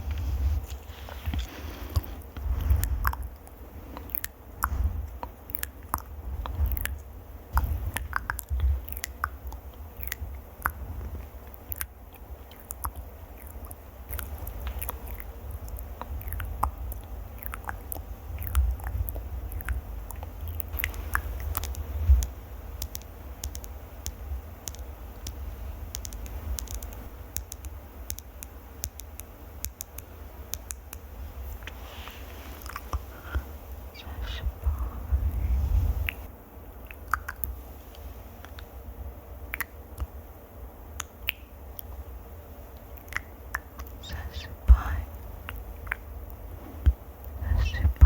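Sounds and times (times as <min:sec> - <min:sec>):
low handling rumble on microphone: 0:00.0 - 0:05.3, 0:33.8 - 0:36.3
sharp crackling clicks: 0:01.4 - 0:31.1.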